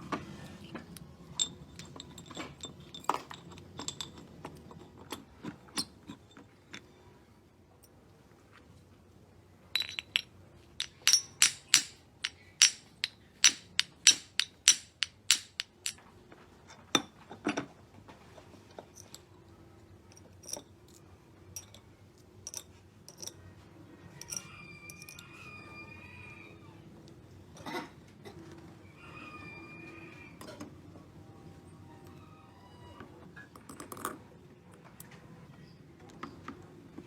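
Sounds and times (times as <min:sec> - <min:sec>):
tool tapping on metal: 0:09.8 - 0:16.0.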